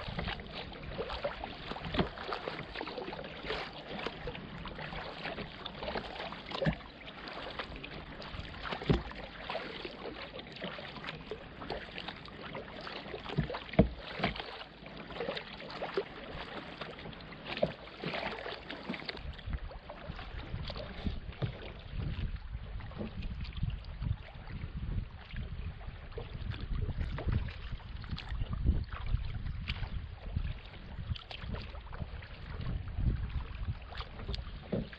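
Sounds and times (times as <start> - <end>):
wind rumble on microphone: 0.0 - 10.1, 19.0 - 34.9
paddle splashes: 0.0 - 34.9
water lapping and dripping: 0.0 - 34.9.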